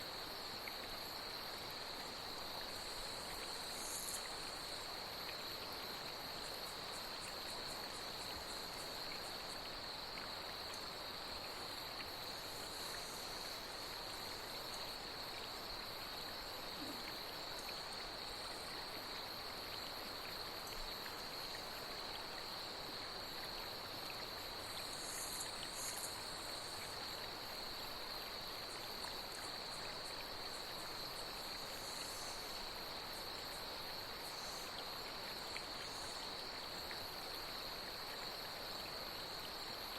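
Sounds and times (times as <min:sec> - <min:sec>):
flowing water: 0:00.0 - 0:39.9
night insects trilling: 0:00.0 - 0:39.9
short high insect calls: 0:01.6 - 0:19.0, 0:23.9 - 0:38.0.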